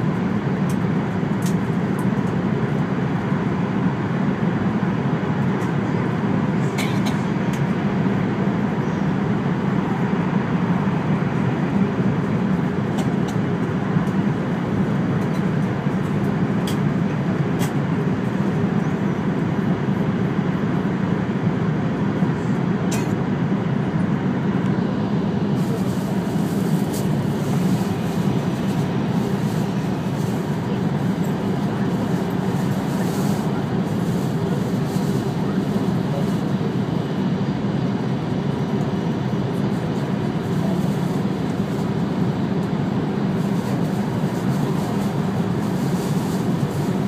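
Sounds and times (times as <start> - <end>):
train cabin rumble: 22.4 - 37.9.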